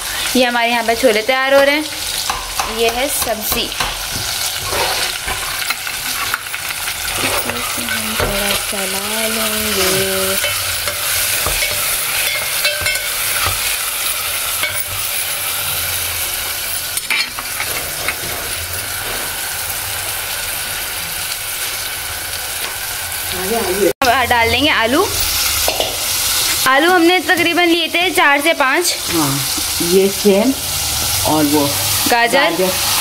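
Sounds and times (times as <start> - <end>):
tomatoes frying in oil: 0.0 - 33.0
metal spoon scraping a pot: 3.7 - 8.7, 9.6 - 16.0, 16.6 - 19.1.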